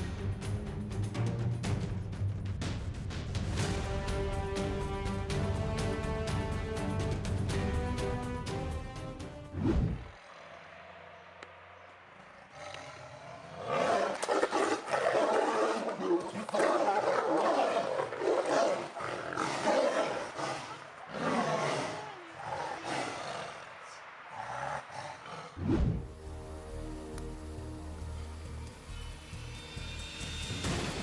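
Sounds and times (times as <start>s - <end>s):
animal growling calls: 12.4s - 26.0s.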